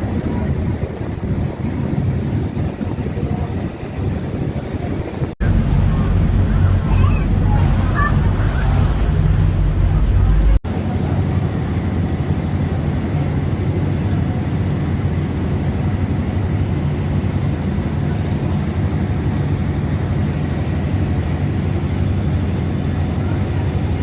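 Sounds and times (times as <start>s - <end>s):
boat engine droning: 0.0s - 24.0s
wind and water hiss: 0.0s - 24.0s.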